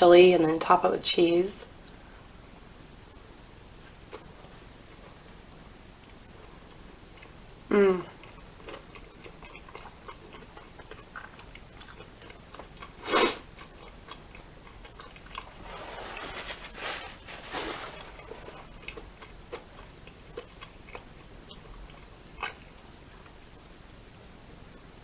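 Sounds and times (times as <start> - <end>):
close chewing and mouth clicks: 3.8 - 7.4, 8.0 - 16.3, 17.2 - 24.3
rustling noise: 15.4 - 18.7.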